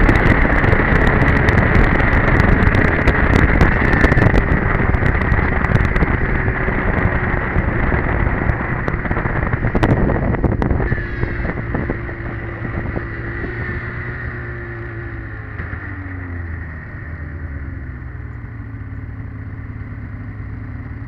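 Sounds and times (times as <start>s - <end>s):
wind buffeting microphone: 0.0s - 16.0s
snowmobile engine running: 0.0s - 21.0s.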